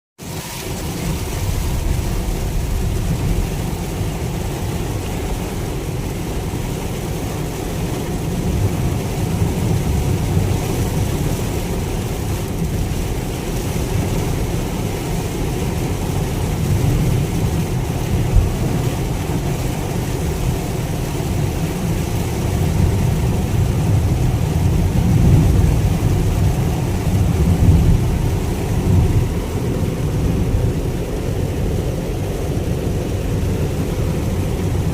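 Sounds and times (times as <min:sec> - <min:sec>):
heavy rain on car body: 0:00.2 - 0:34.9
road and engine rumble: 0:00.2 - 0:34.9.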